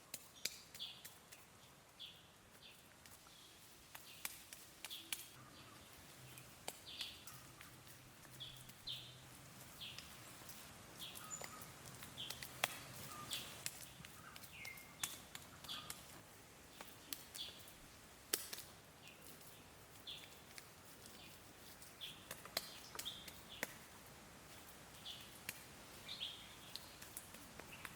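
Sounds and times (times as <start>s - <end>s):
small birds chirping: 0.0s - 27.9s.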